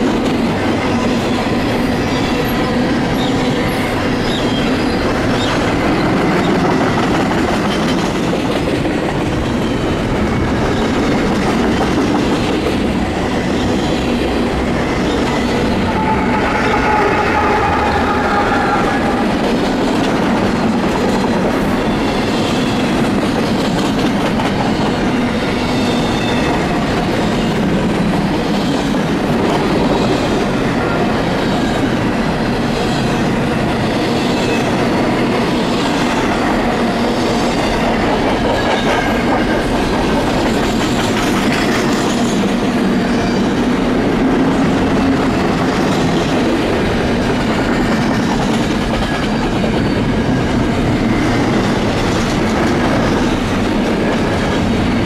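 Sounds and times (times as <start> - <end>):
freight train wheels rumbling: 0.0 - 55.0
locomotive whine: 9.2 - 23.1.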